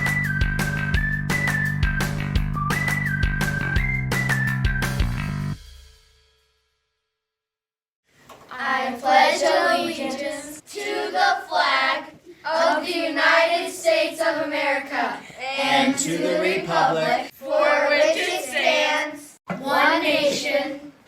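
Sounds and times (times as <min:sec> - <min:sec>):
children singing together: 0:08.5 - 0:21.0.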